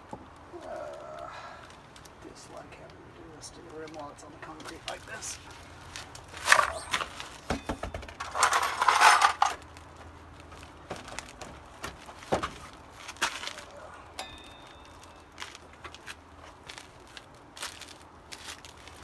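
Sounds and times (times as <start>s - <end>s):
metal tools clinking: 6.4s - 9.6s, 14.1s - 15.9s.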